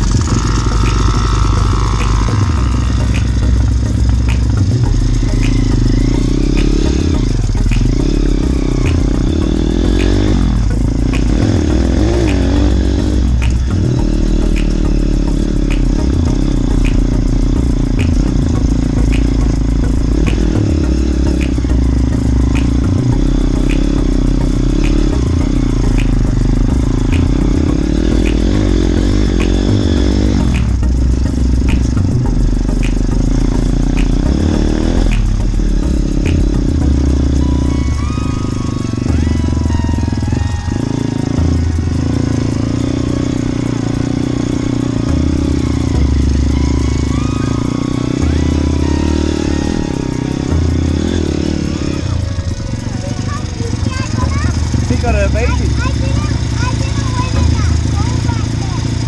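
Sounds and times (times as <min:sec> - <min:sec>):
small motorbike engine running: 0:00.0 - 0:30.6.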